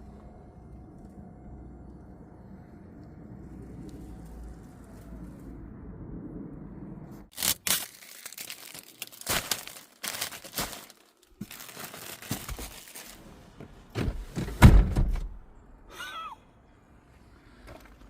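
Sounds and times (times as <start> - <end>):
crinkling and tearing: 7.3 - 13.2.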